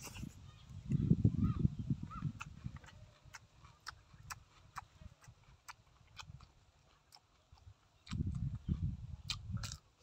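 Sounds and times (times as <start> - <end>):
wet chewing and lip-smacking: 1.7 - 10.0.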